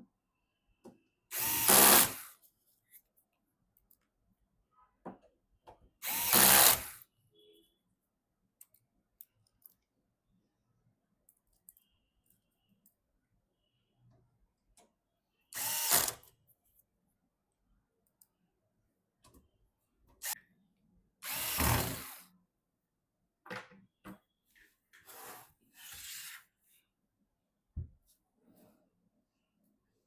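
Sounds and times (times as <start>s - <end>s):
electric screwdriver whirring: 1.3s - 2.3s, 6.0s - 7.0s, 15.6s - 16.2s, 21.2s - 22.2s
faint clicks of parts handled: 8.6s - 10.0s, 11.2s - 13.0s.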